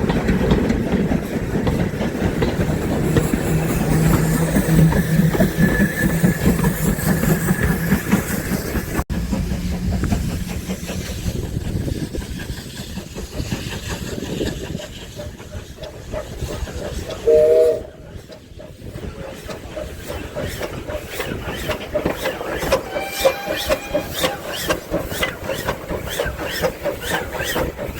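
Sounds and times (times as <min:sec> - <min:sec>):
steam train rumbling: 0:00.0 - 0:27.9
wheels clickety-clack: 0:00.0 - 0:27.9
steam whistle blast: 0:17.2 - 0:17.9, 0:22.7 - 0:24.4.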